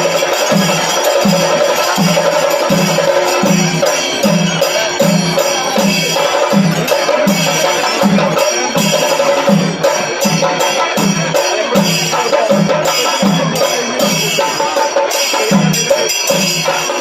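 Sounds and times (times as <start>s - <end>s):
held tone: 0.0s - 10.8s
low drum beat: 0.0s - 16.7s
metallic cymbal-like strokes: 0.0s - 17.0s.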